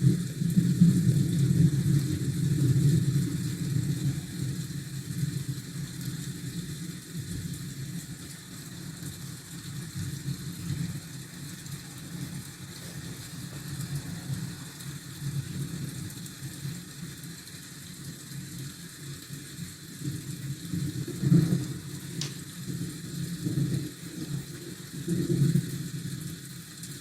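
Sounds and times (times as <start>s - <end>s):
rain hiss: 0.0s - 27.0s
city traffic rumble: 8.7s - 16.3s.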